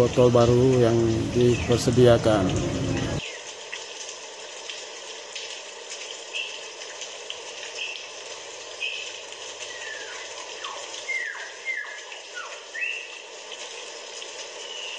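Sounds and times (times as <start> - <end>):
birds chirping and whistling: 1.0 - 3.3, 9.7 - 13.1.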